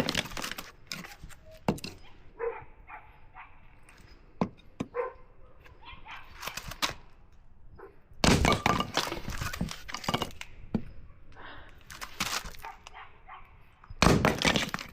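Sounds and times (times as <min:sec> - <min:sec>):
wood cracking as it splits: 0:00.0 - 0:01.4, 0:08.2 - 0:10.5, 0:11.9 - 0:12.8, 0:14.0 - 0:14.9
hatchet chopping firewood: 0:00.0 - 0:02.0, 0:04.4 - 0:05.1, 0:08.2 - 0:10.9, 0:14.0 - 0:14.9.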